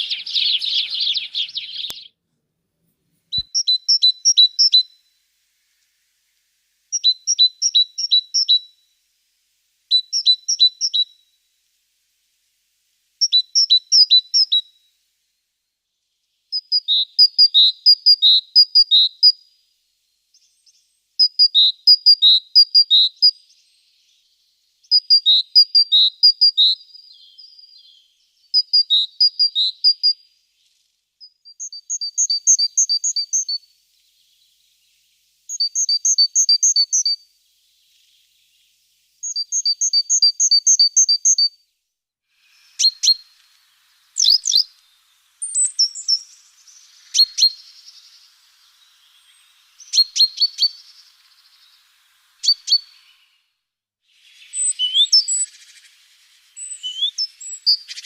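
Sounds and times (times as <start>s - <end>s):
songbird chirping: 0.0s - 2.2s, 3.3s - 58.0s.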